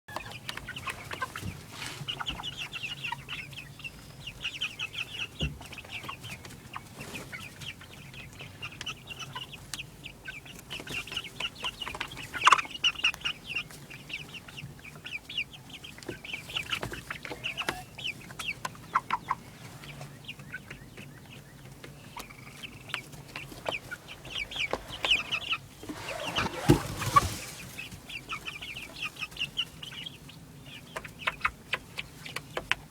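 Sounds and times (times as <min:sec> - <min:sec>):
baby chicks peeping: 0:00.1 - 0:32.9
rustling noise: 0:01.0 - 0:02.4, 0:22.6 - 0:28.2.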